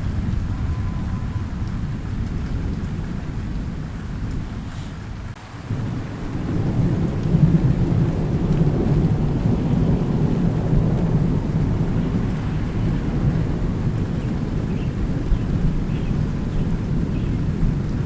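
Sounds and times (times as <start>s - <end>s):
steady rain: 0.0s - 18.0s
thunder rumbling: 0.0s - 18.0s.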